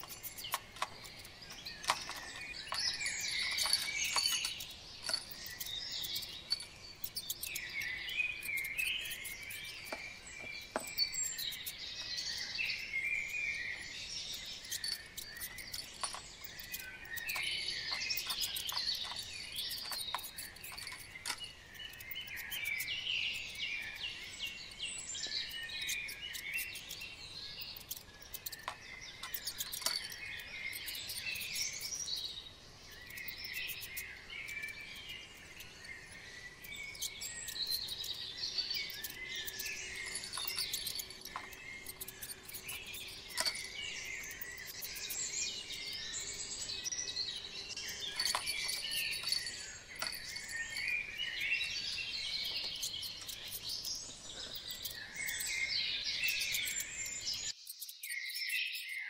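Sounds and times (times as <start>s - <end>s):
sharp clicks: 0.0s - 24.6s, 25.2s - 47.0s
songbirds singing and chirping: 0.0s - 59.0s.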